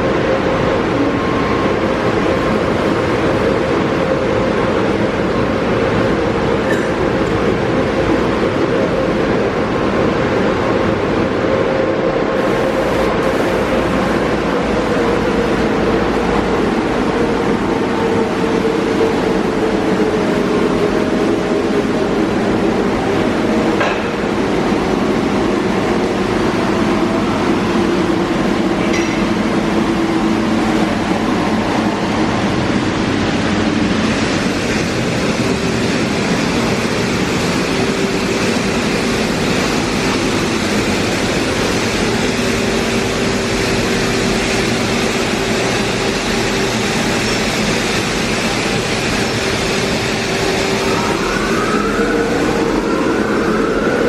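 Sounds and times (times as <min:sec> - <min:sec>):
car wash spray and machinery: 0:00.0 - 0:54.0
machinery whines: 0:00.0 - 0:54.0
motor hum: 0:12.4 - 0:14.4.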